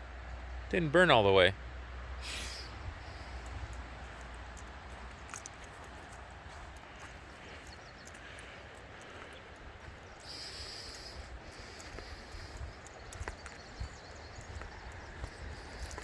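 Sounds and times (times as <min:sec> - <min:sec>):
footsteps on dry forest floor: 0:03.0 - 0:16.0.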